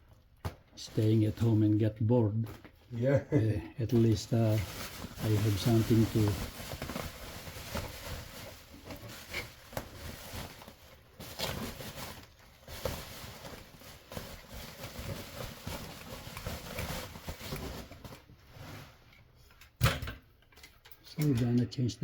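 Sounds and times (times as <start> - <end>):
hands rustling: 3.9 - 18.3.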